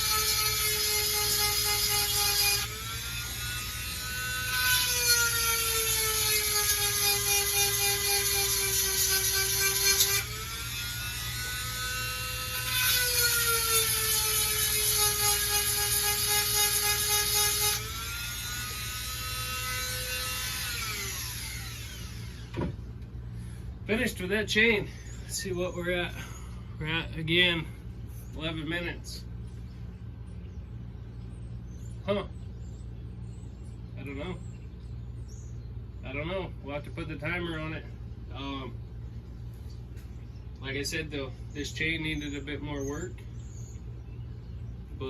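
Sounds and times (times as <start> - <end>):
rotary tool motor whining: 0.0 - 22.8.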